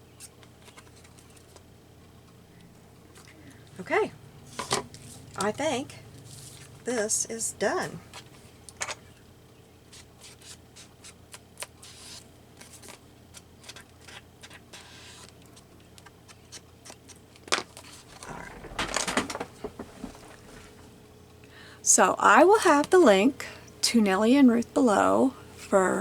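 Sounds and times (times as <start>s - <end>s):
faint steady hum: 0.0s - 26.0s
paper rustling: 17.8s - 20.8s.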